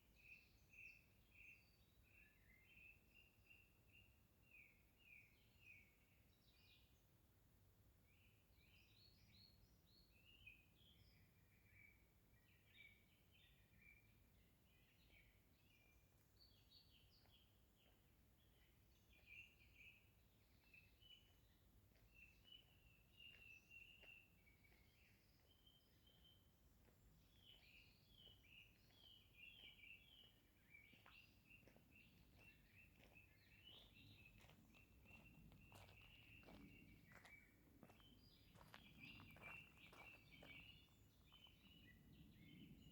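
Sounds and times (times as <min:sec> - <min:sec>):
small birds chirping: 0:14.7 - 0:42.9.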